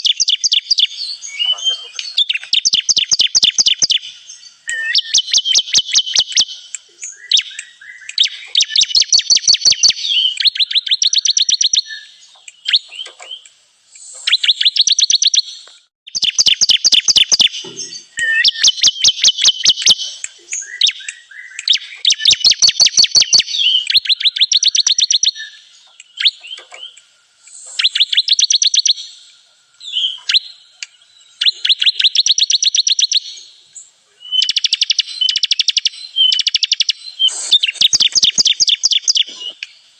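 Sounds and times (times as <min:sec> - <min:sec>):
bird song rapid trills: 0:00.0 - 0:39.9.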